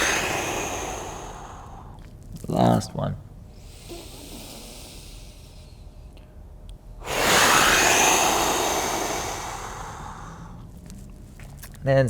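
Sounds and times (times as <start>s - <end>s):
person breathing deeply: 0.0s - 2.0s, 3.5s - 6.1s, 7.0s - 10.7s.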